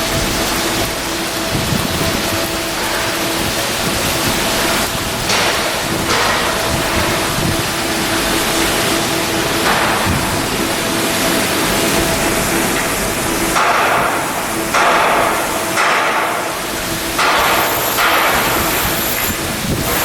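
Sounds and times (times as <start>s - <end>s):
loud continuous construction noise: 0.0s - 20.0s
hammering on steel: 4.7s - 7.6s, 9.6s - 10.6s, 12.7s - 19.3s.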